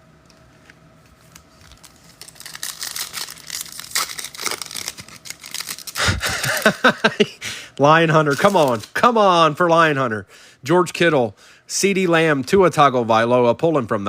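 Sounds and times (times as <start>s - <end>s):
plastic wrapper tearing and crinkling: 1.2s - 6.8s, 8.2s - 9.1s.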